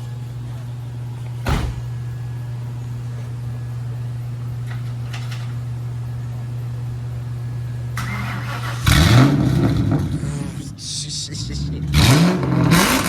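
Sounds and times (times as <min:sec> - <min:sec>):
car door shutting thud: 0:01.4 - 0:02.0.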